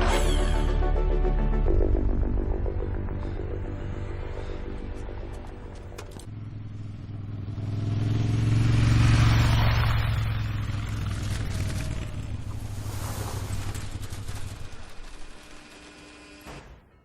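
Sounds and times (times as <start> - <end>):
motorcycle engine passing by: 6.2 - 15.5.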